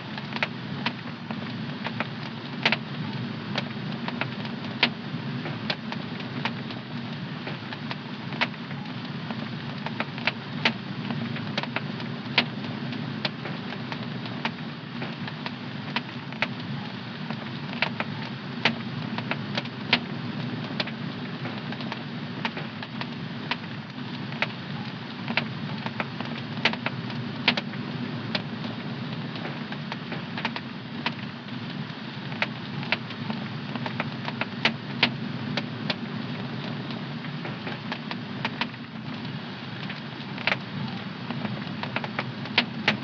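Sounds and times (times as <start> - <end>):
wood fire crackling and popping: 0.0 - 43.0.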